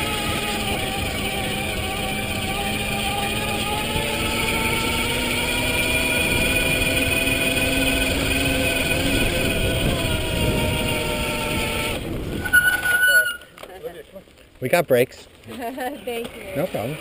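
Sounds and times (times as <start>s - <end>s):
electric bike motor whining: 0.0s - 13.6s
brakes squealing: 0.0s - 14.6s
tyre and wind rumble: 9.3s - 13.6s.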